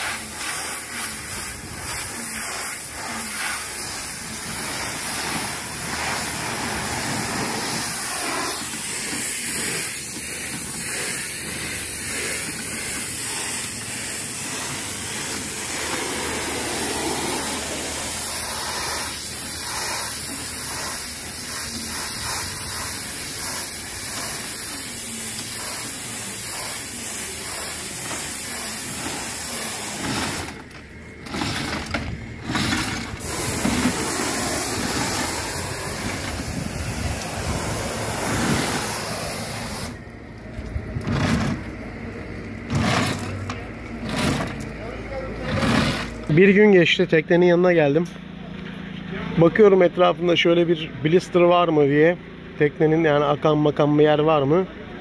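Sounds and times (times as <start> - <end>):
high-pressure water jet spraying: 0.0 - 40.1, 42.7 - 46.4.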